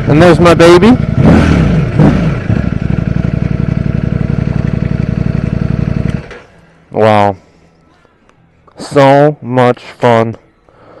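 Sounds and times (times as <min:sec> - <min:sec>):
motorcycle engine idling: 0:00.0 - 0:06.8.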